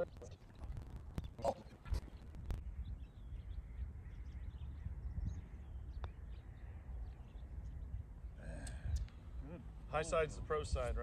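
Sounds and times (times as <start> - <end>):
faint bird chirps: 1.2 - 9.6.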